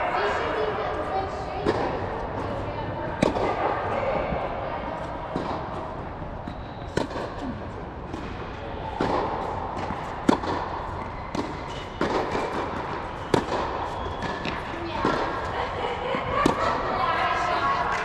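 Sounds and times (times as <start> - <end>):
racquets striking tennis balls: 1.6 - 15.6, 16.4 - 16.9
ball bounces: 3.2 - 7.5, 8.1 - 15.5.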